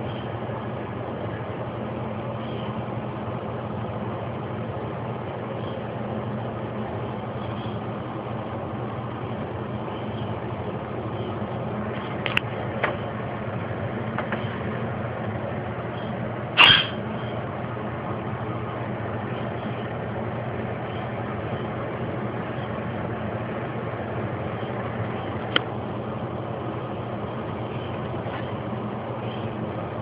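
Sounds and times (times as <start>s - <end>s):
low mechanical hum: 0.0s - 30.0s
cockatiel chirping: 16.6s - 17.0s.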